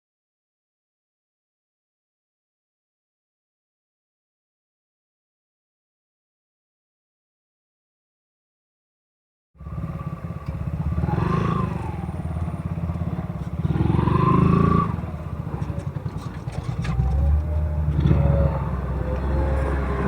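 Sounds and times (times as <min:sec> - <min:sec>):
motorcycle engine revving: 0:09.6 - 0:20.0
road and wind noise: 0:09.6 - 0:20.0.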